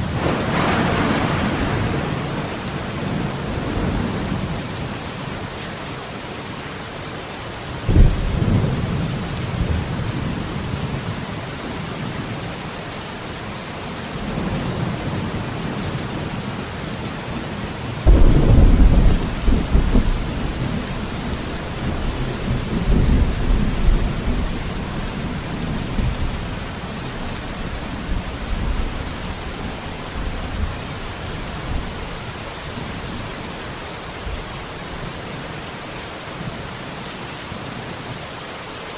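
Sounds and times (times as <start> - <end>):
thunder rumbling: 0.0 - 5.0, 18.0 - 32.0
steady rain falling: 0.0 - 38.9.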